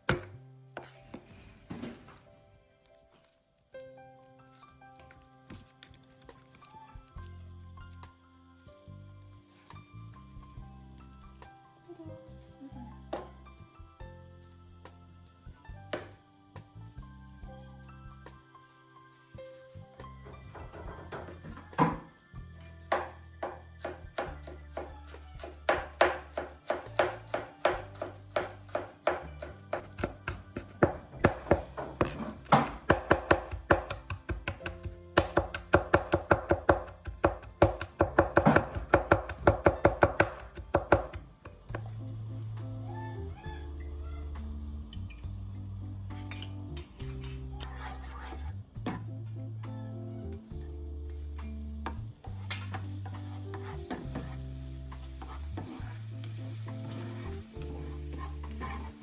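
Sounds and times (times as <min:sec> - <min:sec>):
background music: 0:00.0 - 0:59.0
knife chopping on cutting board: 0:22.9 - 0:41.6
utensil scraping a pan: 0:46.1 - 0:49.1, 0:51.8 - 0:59.0
food sizzling: 0:50.6 - 0:59.0.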